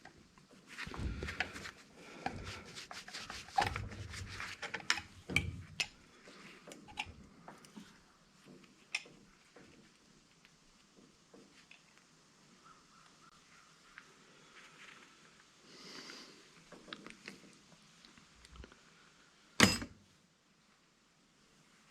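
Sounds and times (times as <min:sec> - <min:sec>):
metal parts and tools clattering: 0:19.6 - 0:20.0.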